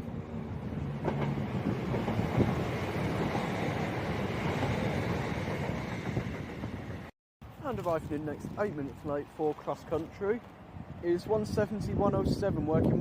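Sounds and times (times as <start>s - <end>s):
diesel train engine: 0.0s - 7.1s.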